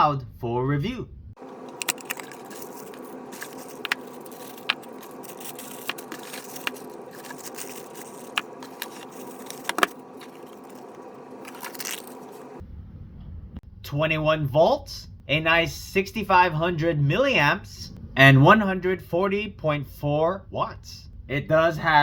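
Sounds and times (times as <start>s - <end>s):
steady low hum: 1.2s - 13.9s
light scraping: 1.4s - 12.6s.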